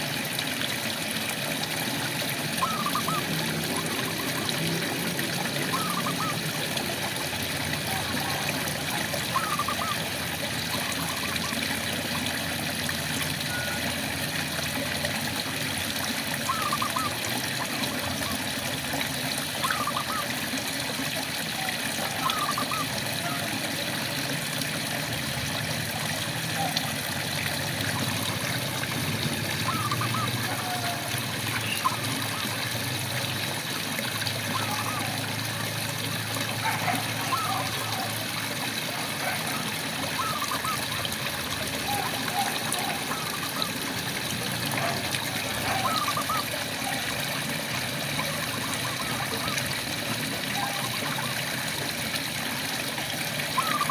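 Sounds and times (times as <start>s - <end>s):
rain pattering and trickling: 0.0s - 53.9s
frogs chirping: 2.6s - 4.5s, 9.2s - 10.0s, 29.6s - 32.6s.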